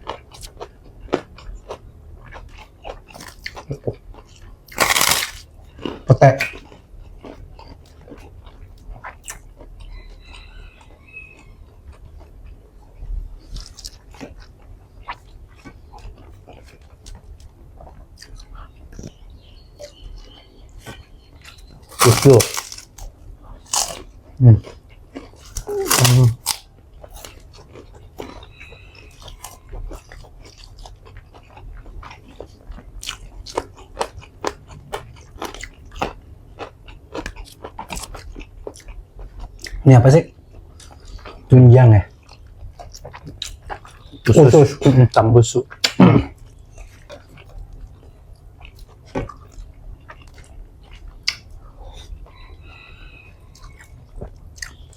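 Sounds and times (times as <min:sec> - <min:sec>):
chewing and biting food: 0:00.0 - 0:44.6, 0:45.7 - 0:54.9
mouth clicks: 0:25.5 - 0:26.6.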